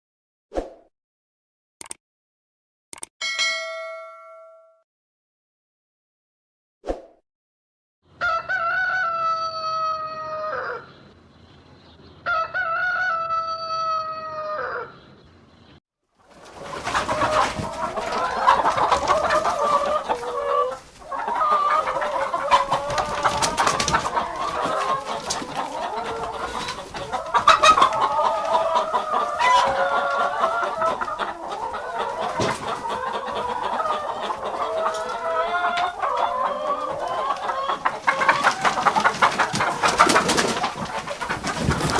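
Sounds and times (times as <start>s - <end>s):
chickens clucking and squawking: 8.1s - 41.9s.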